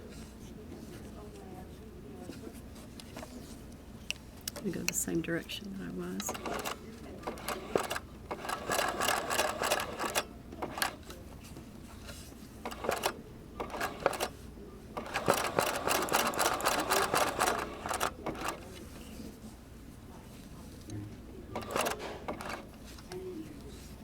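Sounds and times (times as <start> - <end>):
sewing machine stitching: 6.2 - 11.0, 12.7 - 14.3, 15.0 - 18.7, 21.5 - 22.7.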